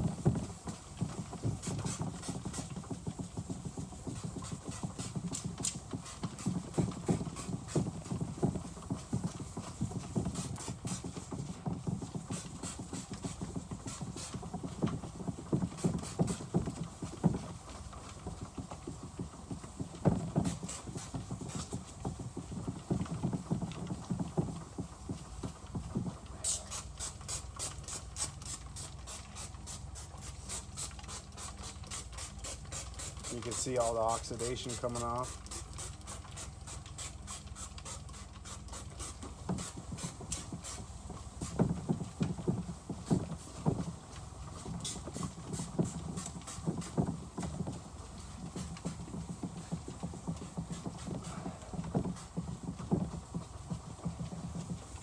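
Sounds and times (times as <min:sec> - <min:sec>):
sandpaper scrubbing plastic: 0:00.1 - 0:23.4, 0:26.0 - 0:55.0.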